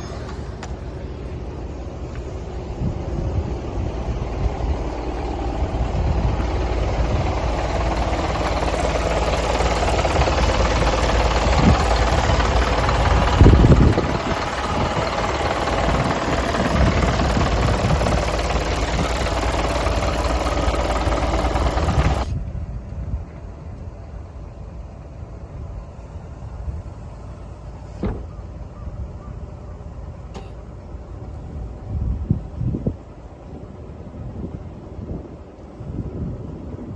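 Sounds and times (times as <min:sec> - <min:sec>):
truck diesel engine running: 0:00.0 - 0:22.5
loud thump: 0:28.0 - 0:28.3.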